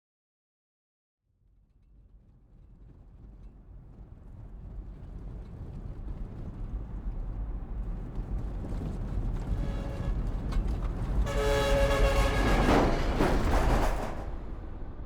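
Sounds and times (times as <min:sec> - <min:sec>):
vehicle horn blast: 0:09.6 - 0:10.3, 0:11.2 - 0:12.8.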